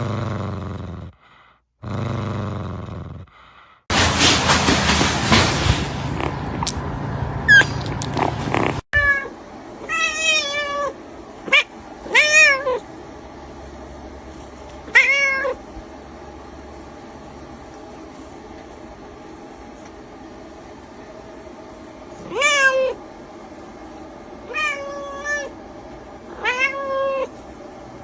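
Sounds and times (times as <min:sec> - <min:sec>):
rustling and scraping noise: 0:03.9 - 0:06.6
cat meowing: 0:26.3 - 0:27.3.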